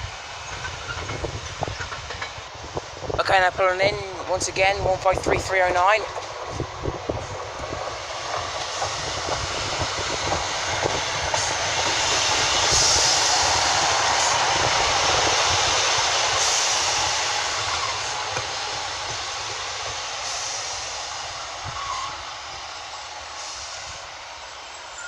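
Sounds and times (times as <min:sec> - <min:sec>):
diesel railcar running: 0:00.0 - 0:25.0
high-pitched hiss: 0:08.0 - 0:25.0.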